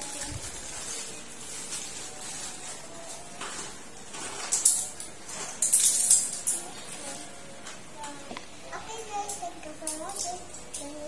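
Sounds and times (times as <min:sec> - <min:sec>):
gift wrapping rustling and tearing: 0:00.0 - 0:07.2.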